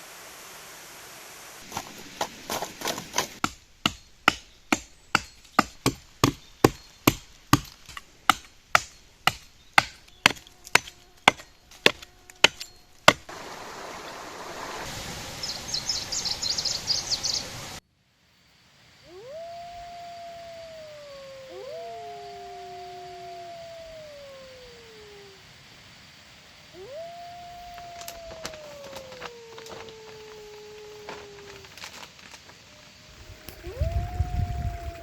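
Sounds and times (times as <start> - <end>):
steady hiss: 0.0 - 35.0
blade chopping wood: 1.7 - 13.3.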